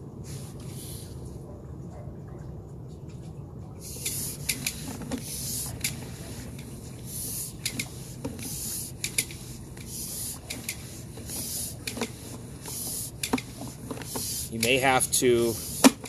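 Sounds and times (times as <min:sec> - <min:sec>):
cable hissing rubs: 0:03.8 - 0:16.0.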